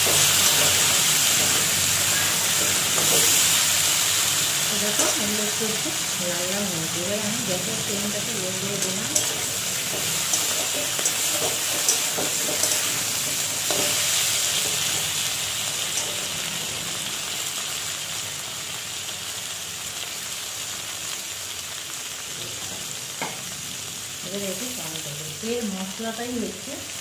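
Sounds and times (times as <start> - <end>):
vegetables frying in oil: 0.0 - 27.0
metal spatula clicking on pan: 8.8 - 14.0.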